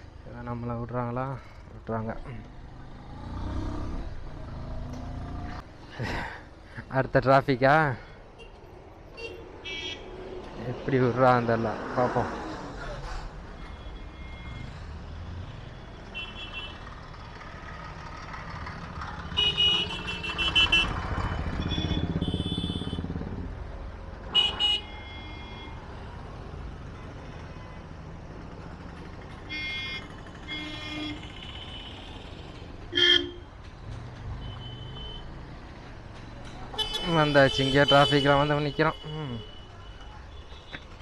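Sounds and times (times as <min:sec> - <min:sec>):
vehicle horns tooting: 0:15.4 - 0:16.8, 0:19.3 - 0:23.1, 0:24.3 - 0:25.8, 0:29.5 - 0:33.5, 0:34.4 - 0:35.4, 0:36.7 - 0:40.9.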